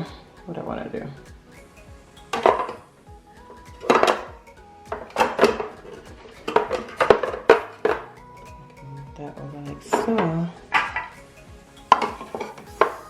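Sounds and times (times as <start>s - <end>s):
soft background music: 0.0s - 13.0s
toiletry bottles clattering: 2.3s - 8.1s, 11.8s - 13.0s.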